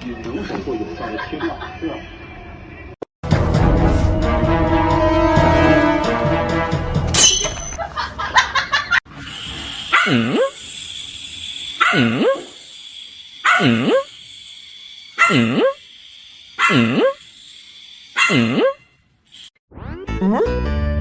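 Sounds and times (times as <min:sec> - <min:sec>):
music: 0:03.2 - 0:07.2, 0:20.0 - 0:21.0
dog barking: 0:09.9 - 0:10.5, 0:11.8 - 0:12.5, 0:13.4 - 0:14.0, 0:15.2 - 0:15.5, 0:16.6 - 0:17.1, 0:18.2 - 0:18.7.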